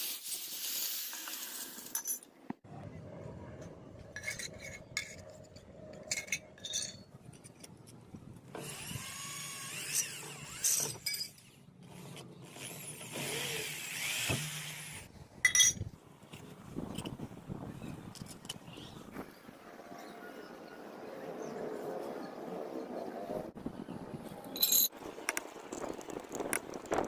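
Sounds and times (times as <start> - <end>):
power tool running: 12.0 - 15.1.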